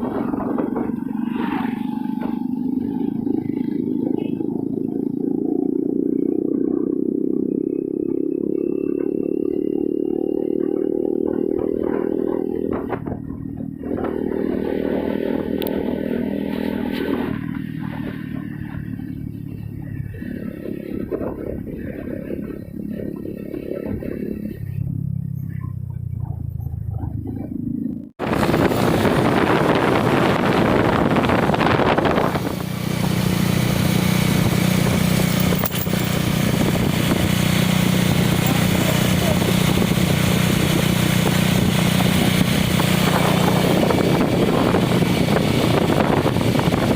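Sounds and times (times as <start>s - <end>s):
motorcycle engine running: 0.0s - 46.9s
dense rushing noise: 28.2s - 46.9s.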